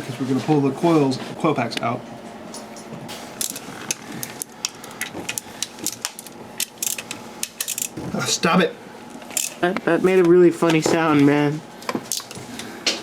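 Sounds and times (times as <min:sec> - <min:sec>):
socket and ratchet clicking: 0:03.4 - 0:08.0.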